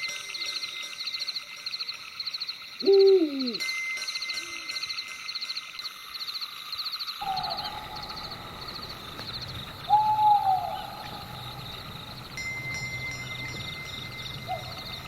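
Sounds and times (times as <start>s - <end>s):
insects chirping: 0.0s - 15.0s
falling hoot-like call: 2.8s - 3.6s, 7.2s - 8.8s, 9.8s - 11.9s, 14.4s - 15.0s.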